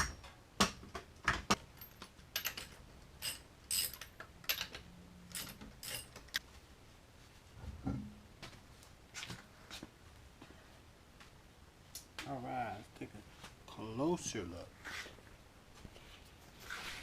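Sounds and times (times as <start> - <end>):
metallic clinks of hand tools: 1.7 - 6.3.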